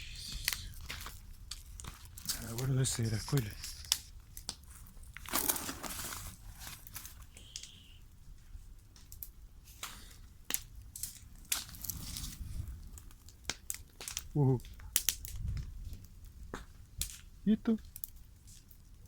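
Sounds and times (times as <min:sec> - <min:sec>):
papers rustling and crumpling: 0:00.5 - 0:07.4, 0:11.1 - 0:13.1.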